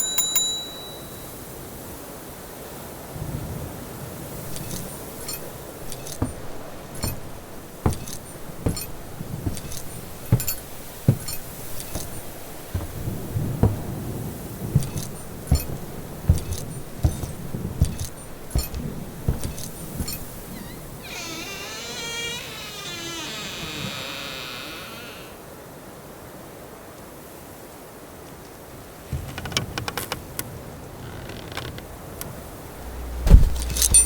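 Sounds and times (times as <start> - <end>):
metallic clinking and jingling: 0.0 - 1.4, 4.4 - 20.6
low rumbling background: 32.7 - 34.0.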